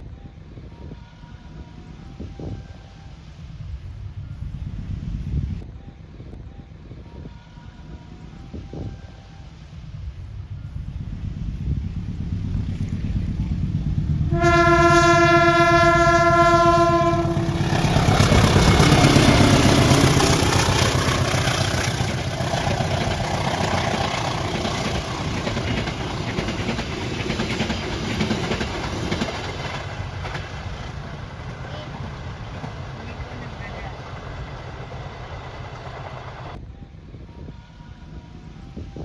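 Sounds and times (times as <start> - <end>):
train passing: 0.0 - 5.6, 7.3 - 36.6
train horn blast: 12.5 - 25.8.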